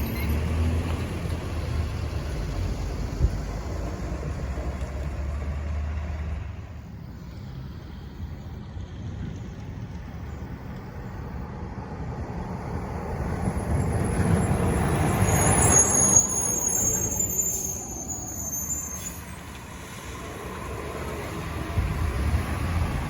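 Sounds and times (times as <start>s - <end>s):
thin high squeal: 0.0s - 0.5s, 14.4s - 19.5s
garbage truck driving past: 0.0s - 10.0s, 11.5s - 23.0s.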